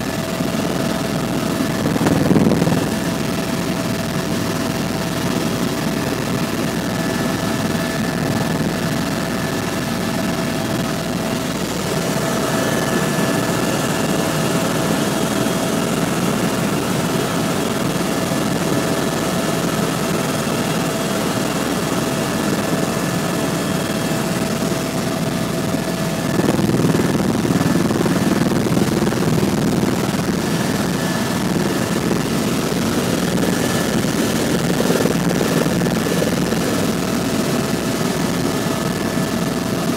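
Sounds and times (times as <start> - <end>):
high whine: 0.0 - 5.6, 21.5 - 38.5
helicopter rotor and engine noise: 0.0 - 39.9.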